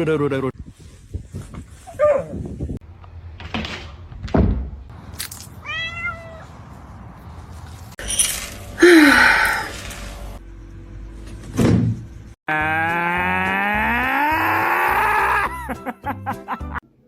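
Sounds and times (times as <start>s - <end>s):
cat meowing: 5.6s - 6.5s
short noises: 8.0s - 10.4s.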